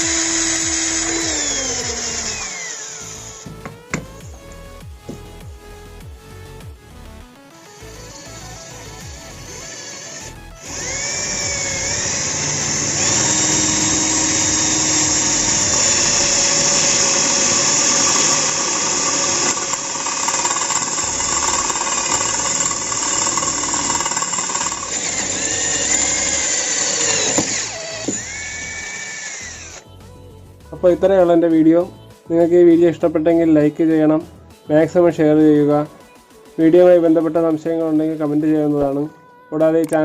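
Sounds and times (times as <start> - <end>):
cordless drill boring into wood: 0.0 - 4.4, 7.7 - 29.9.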